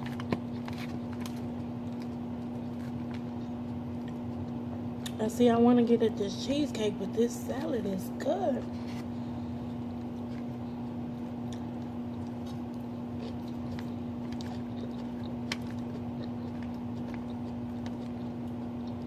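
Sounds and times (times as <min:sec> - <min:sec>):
chewing salad: 0:00.0 - 0:05.2, 0:09.6 - 0:19.0
steady low hum: 0:00.0 - 0:19.0.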